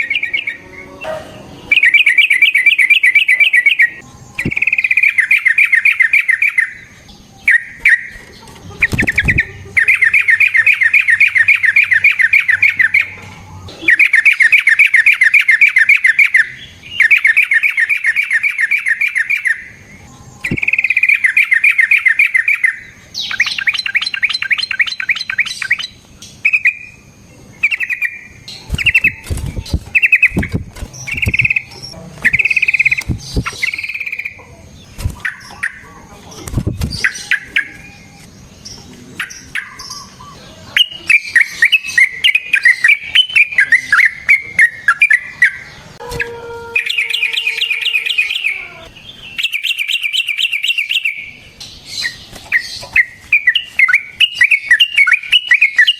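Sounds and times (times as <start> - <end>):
bird singing rattling trills: 0.0 - 55.9
sharp clicks: 30.2 - 34.2.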